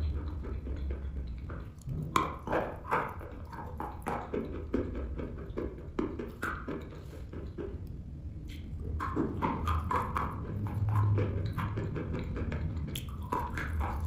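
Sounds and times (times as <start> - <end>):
chalk being bitten and chewed: 12.7 - 14.0.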